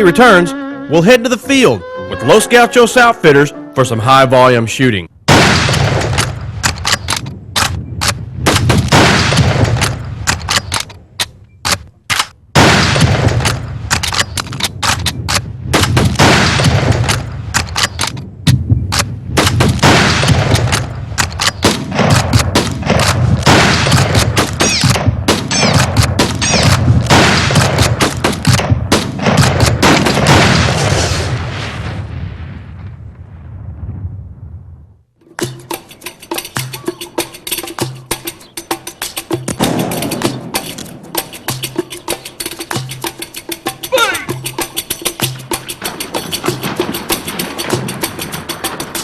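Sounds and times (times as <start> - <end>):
shotgun fire: 5.3 - 10.9, 12.6 - 32.5, 39.6 - 41.0.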